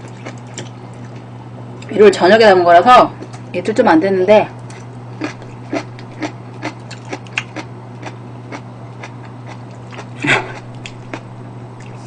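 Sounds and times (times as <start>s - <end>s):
crunchy chewing: 0.0s - 1.9s, 4.6s - 12.0s
steady low hum: 0.0s - 12.0s.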